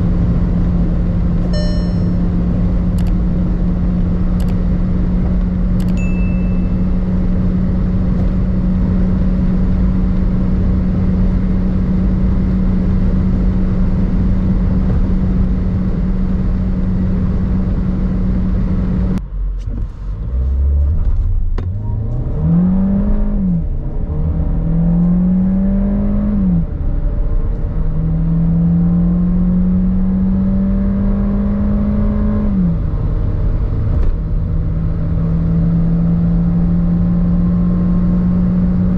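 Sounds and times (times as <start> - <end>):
road and wind noise: 0.0 - 38.9
car engine revving: 20.2 - 38.9.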